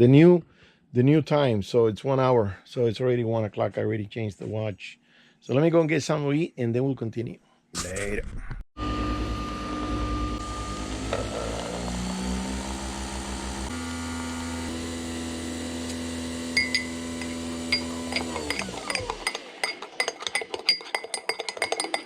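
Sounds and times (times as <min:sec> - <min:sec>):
small electric motor humming: 0:08.8 - 0:19.4
dishes clinking: 0:16.6 - 0:22.0.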